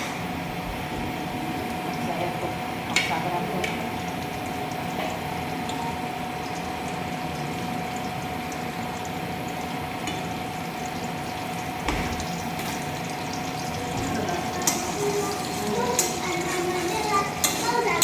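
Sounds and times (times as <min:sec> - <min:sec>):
curry sizzling in a pan: 0:00.0 - 0:18.0.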